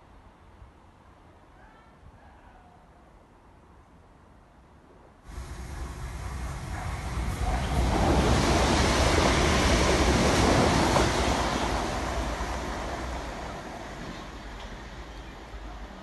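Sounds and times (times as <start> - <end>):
train wheels rumbling on rail: 5.3 - 16.0.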